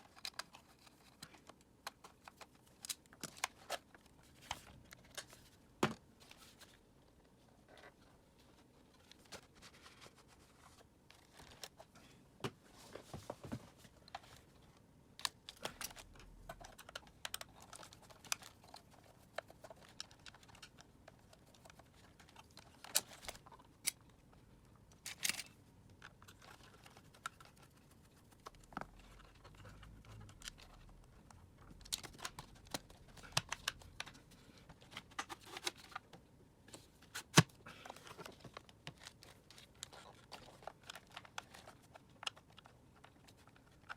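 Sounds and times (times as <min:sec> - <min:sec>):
plastic parts clicking: 0:15.2 - 0:24.1, 0:24.9 - 0:27.7, 0:28.5 - 0:36.1.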